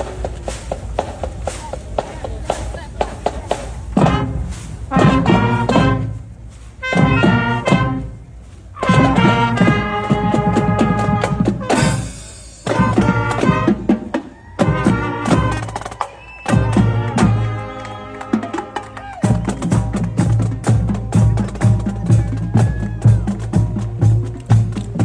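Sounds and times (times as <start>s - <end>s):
drum hits: 0.0s - 6.2s, 6.9s - 8.0s, 8.8s - 17.4s
brass instruments playing: 3.8s - 15.9s, 16.5s - 25.0s.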